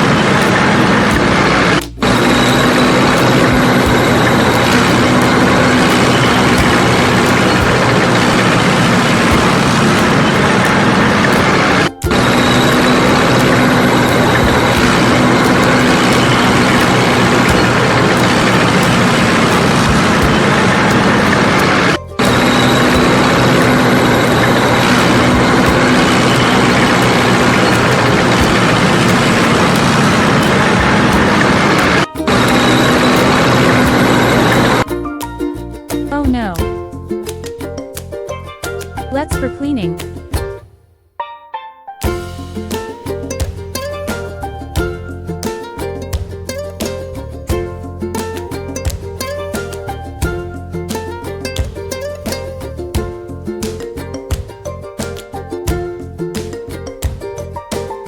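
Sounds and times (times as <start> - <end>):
heavy vehicle engine humming: 0.0 - 34.9.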